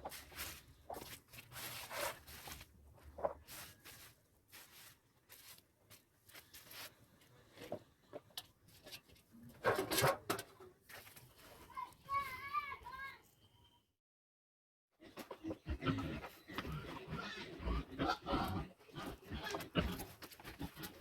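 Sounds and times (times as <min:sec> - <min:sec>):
pigs chewing carrots: 0:15.5 - 0:21.0.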